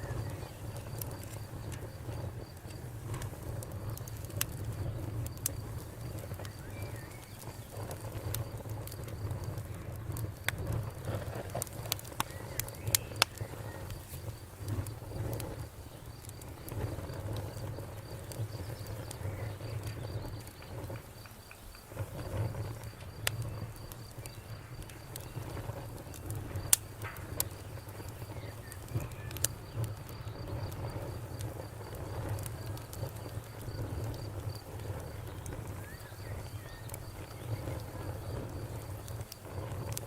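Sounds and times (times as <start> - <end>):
campfire crackling and popping: 0.0 - 40.0
faint high-pitched chirping: 4.7 - 8.0, 12.1 - 15.2, 27.3 - 30.6, 34.9 - 38.6.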